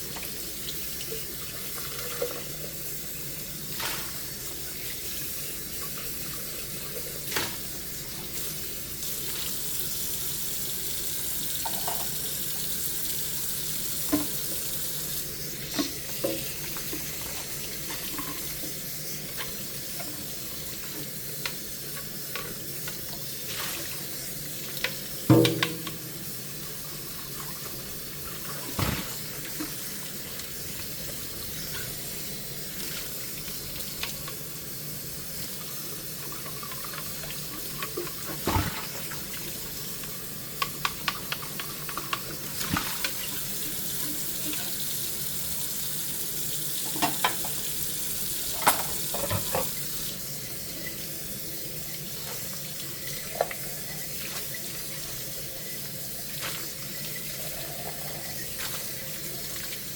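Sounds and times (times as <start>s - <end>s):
tap water running into sink: 0.0s - 59.9s
dishes clinking: 48.6s - 49.8s.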